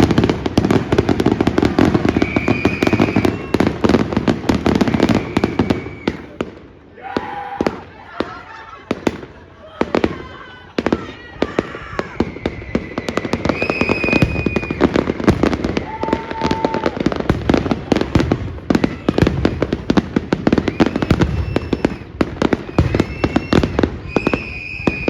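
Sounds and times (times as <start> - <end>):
firework whistles: 0.0 - 6.4, 11.6 - 25.0
fireworks bangs and crackles: 0.0 - 25.0.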